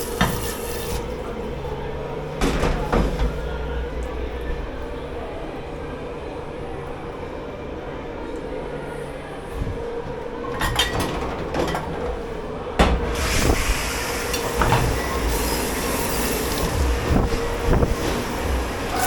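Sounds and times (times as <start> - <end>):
machine hum: 12.0 - 19.0
water rushing hiss: 13.1 - 19.0.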